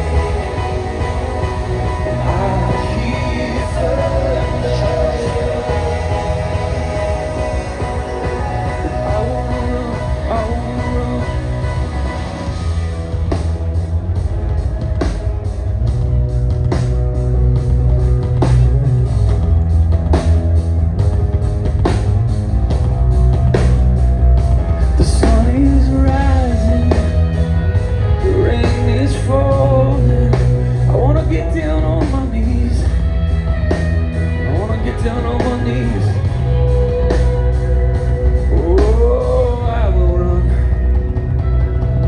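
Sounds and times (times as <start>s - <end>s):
person singing: 0.0s - 12.7s, 34.5s - 37.5s, 38.3s - 41.0s
live rock band playing: 0.0s - 42.0s.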